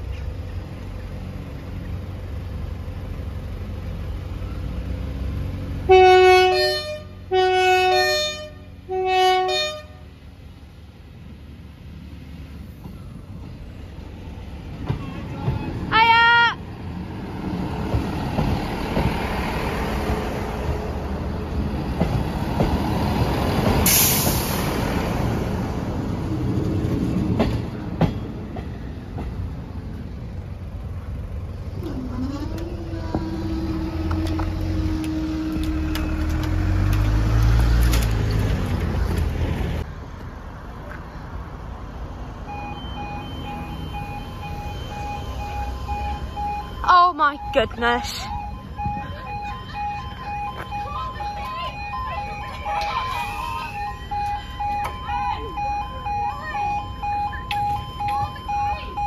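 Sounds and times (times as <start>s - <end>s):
diesel train passing: 0.0s - 59.0s
level crossing alarm pulsing: 42.5s - 59.0s.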